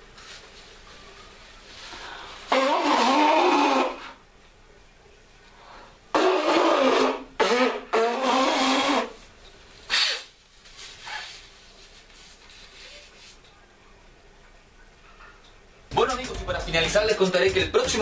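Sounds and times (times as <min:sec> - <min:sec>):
person blowing nose: 0:01.9 - 0:04.2, 0:06.1 - 0:09.2, 0:09.9 - 0:11.5
short sniff: 0:09.9 - 0:10.3, 0:10.9 - 0:11.5.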